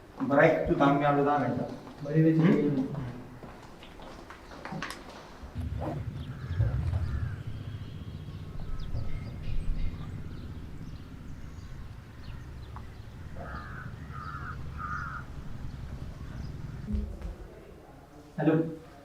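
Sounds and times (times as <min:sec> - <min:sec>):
bird calling: 0:03.7 - 0:17.0
steady low rumble: 0:05.4 - 0:17.2
faint bird chirps: 0:05.6 - 0:16.9.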